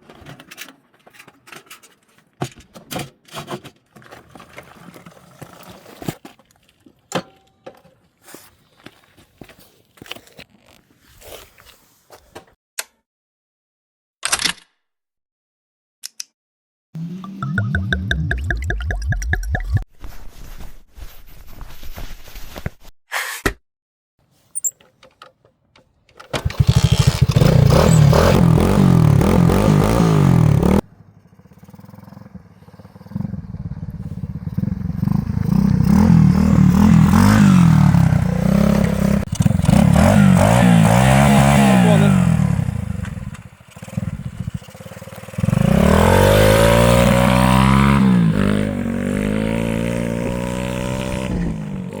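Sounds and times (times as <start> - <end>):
dirt bike engine revving: 17.0 - 18.8, 26.4 - 52.0.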